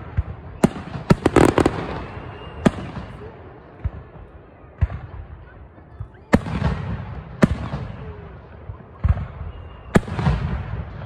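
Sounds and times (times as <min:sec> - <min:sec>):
firework bangs with low rumble: 0:00.0 - 0:11.0.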